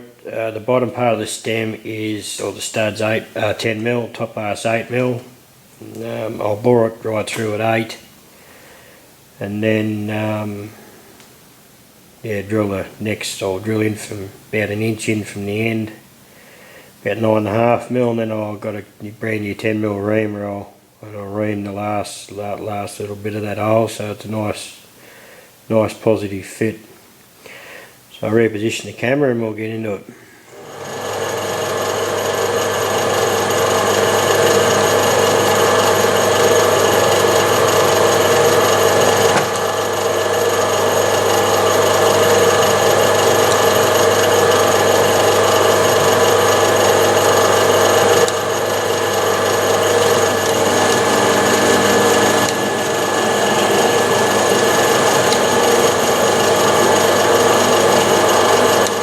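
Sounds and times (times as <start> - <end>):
lathe cutting metal: 30.5 - 59.0
metal lathe humming and whining: 30.5 - 59.0.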